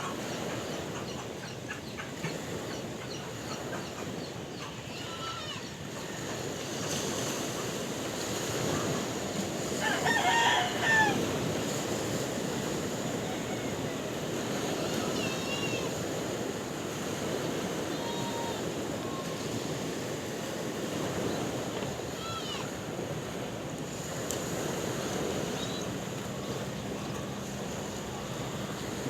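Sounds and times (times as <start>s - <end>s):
sea surf: 0.0s - 29.0s
rooster crowing: 9.8s - 11.5s.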